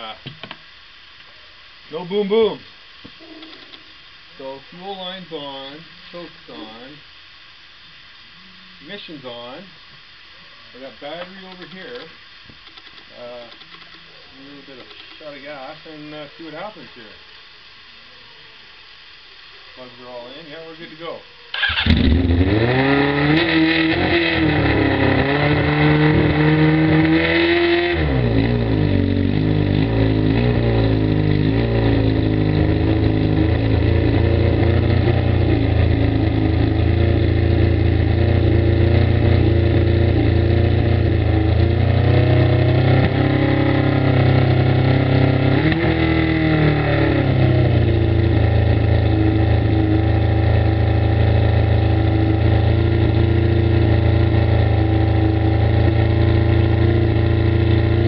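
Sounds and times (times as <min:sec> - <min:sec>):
rough motorcycle engine idling: 0:28.0 - 0:58.0.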